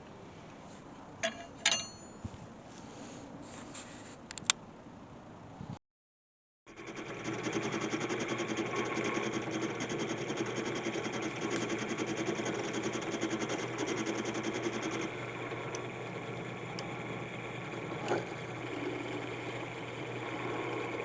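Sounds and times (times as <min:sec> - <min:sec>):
electric power tool humming: 0:06.8 - 0:21.0.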